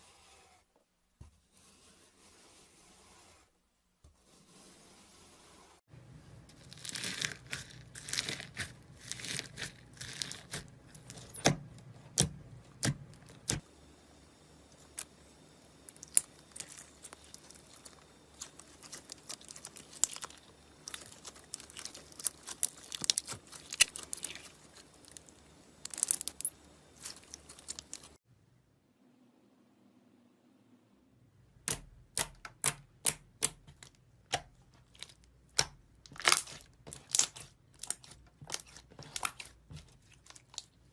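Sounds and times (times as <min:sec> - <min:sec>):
slime being mixed: 0:06.3 - 0:13.7, 0:14.7 - 0:28.2, 0:31.7 - 0:40.9.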